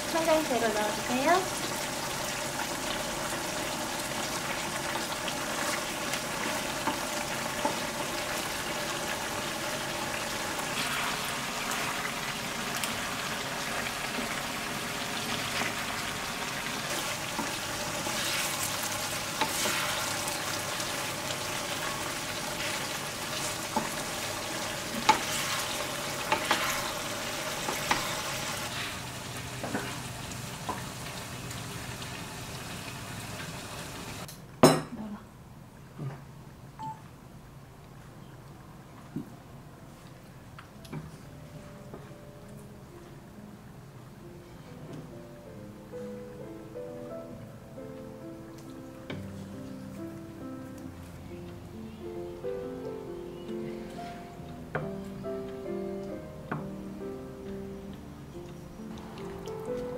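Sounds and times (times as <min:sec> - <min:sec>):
food sizzling in a frying pan: 0:00.0 - 0:34.3.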